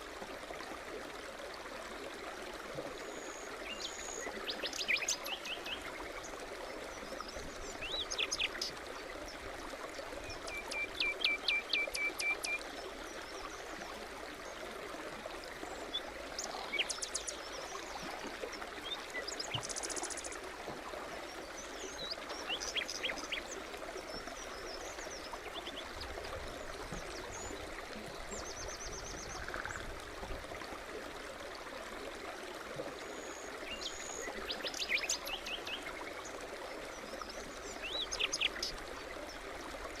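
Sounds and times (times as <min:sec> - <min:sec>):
brook babbling: 0:00.0 - 0:40.0
songbirds chirping: 0:21.3 - 0:29.9, 0:33.0 - 0:39.5.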